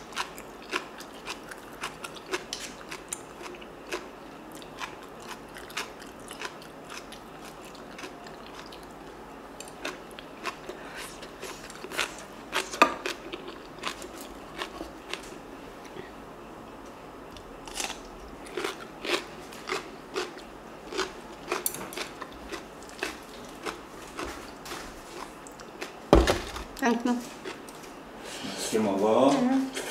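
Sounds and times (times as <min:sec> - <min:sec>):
crunchy chewing: 0:00.0 - 0:16.0, 0:17.6 - 0:27.9.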